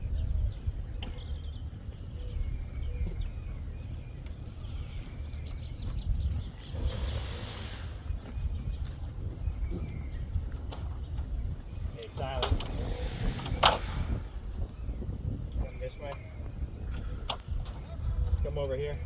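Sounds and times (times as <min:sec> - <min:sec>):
birds chirping: 0:00.0 - 0:19.0
steady low rumble: 0:01.4 - 0:19.0
brief rush of noise: 0:12.2 - 0:14.8.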